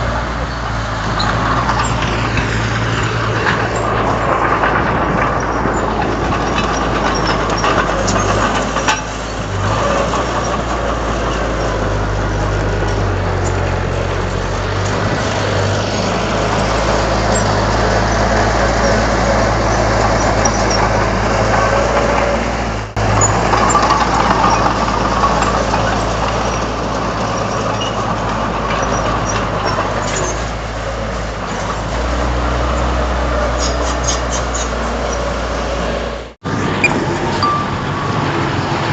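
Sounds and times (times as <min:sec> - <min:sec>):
bulldozer diesel engine running: 0:00.0 - 0:38.9.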